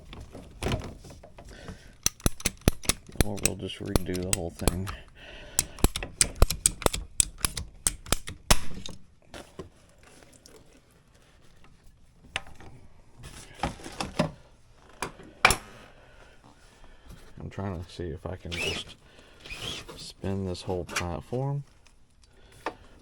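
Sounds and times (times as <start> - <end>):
sharp clicks and rattles: 2.0 - 9.0.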